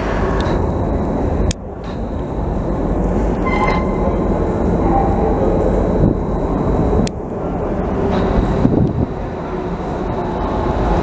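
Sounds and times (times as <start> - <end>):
train rumbling in tunnel: 0.0 - 11.0
high-pitched tones: 3.4 - 5.6.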